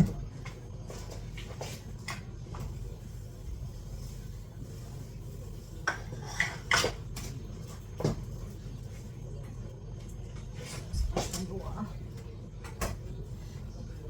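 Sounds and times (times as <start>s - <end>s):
steady low hum: 0.0s - 14.0s
pots and utensils clattering: 5.8s - 8.2s.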